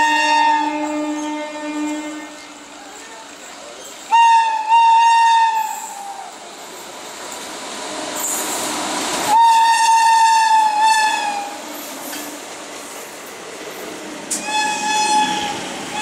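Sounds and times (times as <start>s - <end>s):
train horn blast: 0.0s - 2.7s, 4.1s - 6.0s, 9.3s - 11.6s, 14.3s - 16.0s
train passing at speed: 0.0s - 16.0s.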